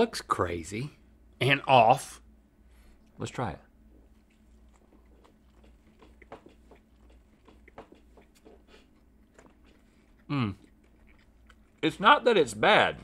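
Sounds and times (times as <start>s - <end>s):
biting and chewing burger: 3.9s - 12.0s.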